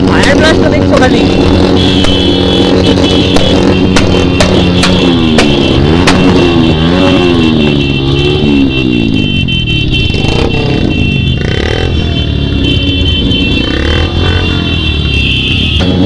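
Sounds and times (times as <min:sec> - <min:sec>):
motorcycle engines revving: 0:00.0 - 0:16.0
road traffic rumble: 0:00.0 - 0:16.0.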